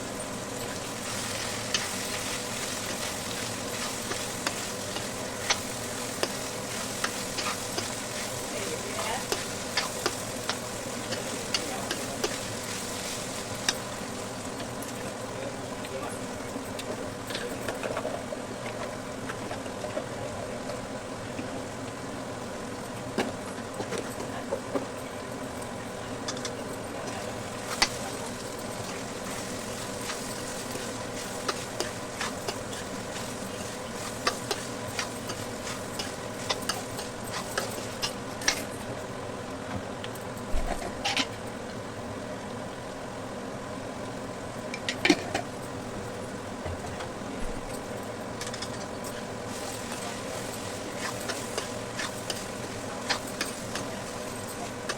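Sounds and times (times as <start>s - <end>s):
food sizzling: 0.0s - 39.6s, 44.2s - 54.9s
spatula scraping a pan: 0.9s - 13.8s, 27.2s - 38.2s, 48.5s - 54.9s.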